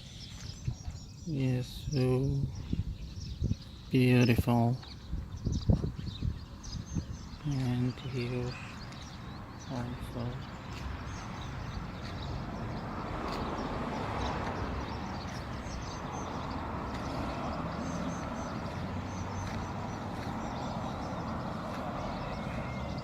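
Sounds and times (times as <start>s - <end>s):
road traffic: 0.0s - 23.0s
small birds chirping: 0.0s - 23.0s
vehicle passing: 8.4s - 23.0s.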